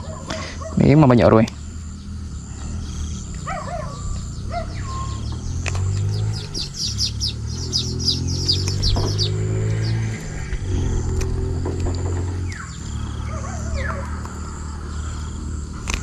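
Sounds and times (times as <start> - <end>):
steady low hum: 0.0 - 16.0
birds whistled calls: 1.9 - 11.4, 12.3 - 16.0
fast high bird chirps: 3.0 - 10.2.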